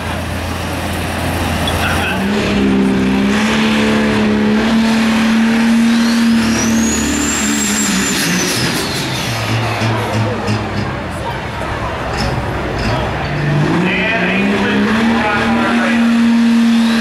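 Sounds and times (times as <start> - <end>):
diesel truck engine revving: 0.0 - 17.0
high turbo whistle: 5.7 - 9.1.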